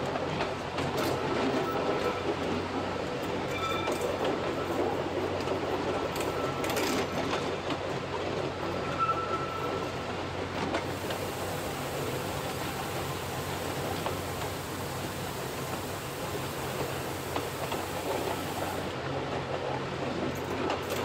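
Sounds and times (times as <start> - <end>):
train rumbling clatter: 0.0 - 21.0
brief high squeal: 3.5 - 4.0, 8.9 - 9.8.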